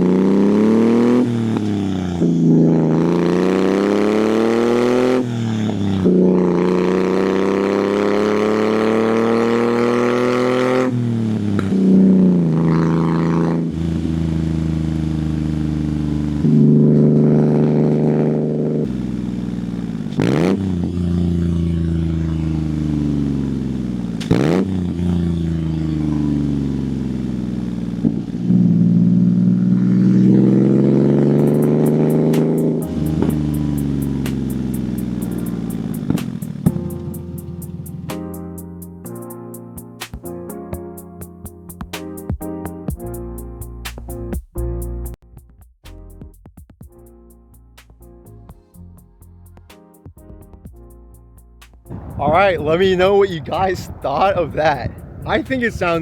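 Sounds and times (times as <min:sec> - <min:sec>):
small truck engine shifting gears: 0:00.0 - 0:38.8.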